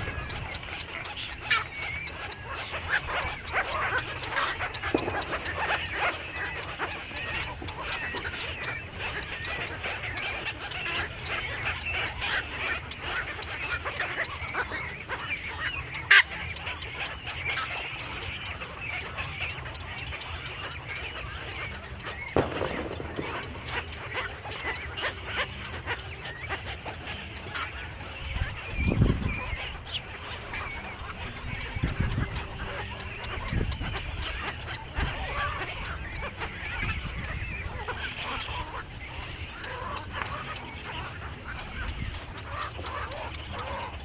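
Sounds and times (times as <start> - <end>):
many birds chirping: 0.0 - 44.0
sharp click: 22.1 - 25.4.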